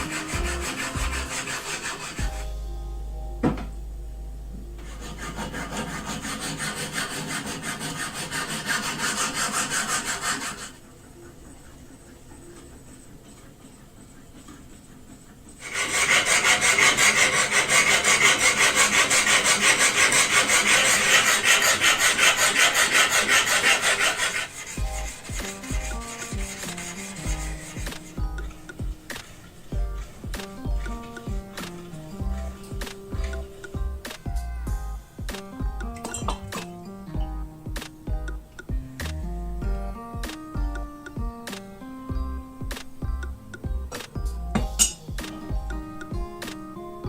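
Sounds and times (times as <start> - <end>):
abrasive rubbing on knife: 15.6 - 30.2.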